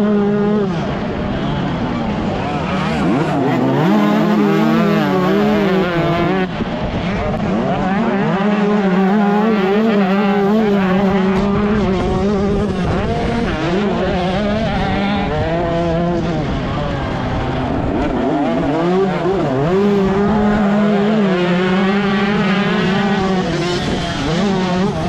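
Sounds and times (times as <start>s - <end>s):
motocross bike engine revving: 0.0s - 25.0s.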